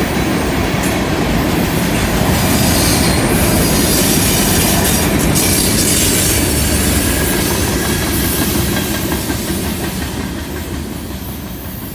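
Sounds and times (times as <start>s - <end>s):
freight train wheels rumbling: 0.0s - 11.9s.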